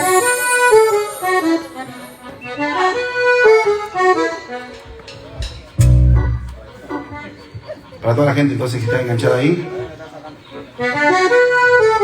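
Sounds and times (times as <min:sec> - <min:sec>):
accordion playing a melody: 0:00.0 - 0:05.1, 0:05.8 - 0:07.8, 0:10.5 - 0:12.0.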